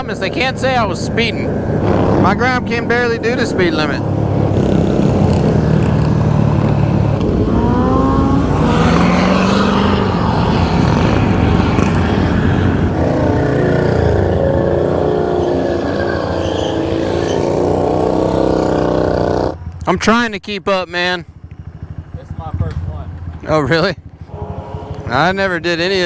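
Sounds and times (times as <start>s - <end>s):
motorcycle engine accelerating: 0.0s - 20.1s, 20.9s - 26.0s
motorcycle engines wavering in pitch: 0.0s - 26.0s
wind rumble on microphone: 0.1s - 15.0s.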